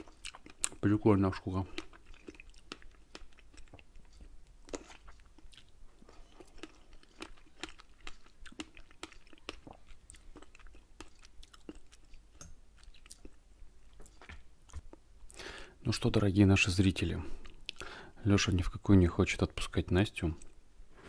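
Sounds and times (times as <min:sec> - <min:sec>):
man chewing wet smacks: 0:00.0 - 0:00.9, 0:01.6 - 0:15.4, 0:17.4 - 0:17.9.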